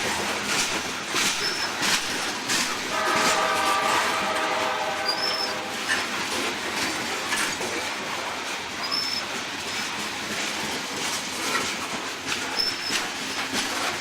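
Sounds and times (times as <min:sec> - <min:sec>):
wheel clacks: 0:00.0 - 0:03.5, 0:05.9 - 0:14.0
train wheels rumbling on rail: 0:00.0 - 0:14.0
high wheel squeals: 0:01.3 - 0:01.9, 0:04.8 - 0:06.0, 0:08.8 - 0:09.4, 0:12.4 - 0:13.6.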